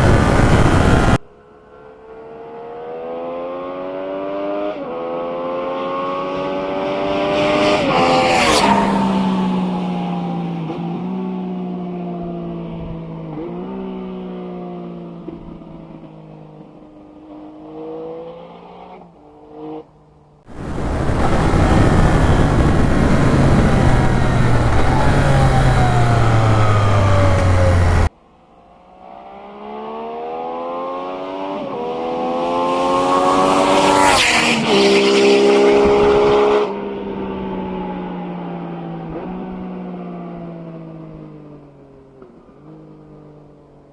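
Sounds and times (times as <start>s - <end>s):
motorcycle engine passing by: 0.0s - 1.2s, 5.3s - 11.2s, 20.5s - 28.1s, 29.5s - 37.7s.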